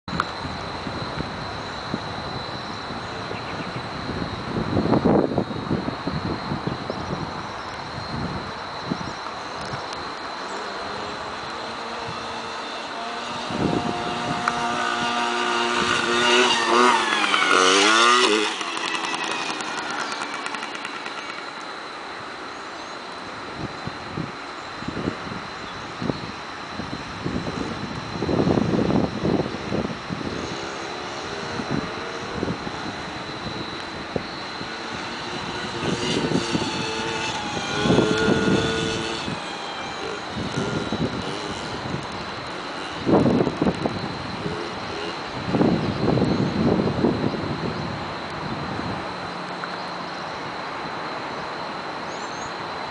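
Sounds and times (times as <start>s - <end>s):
motocross bike engine revving: 10.1s - 21.8s, 27.4s - 47.1s.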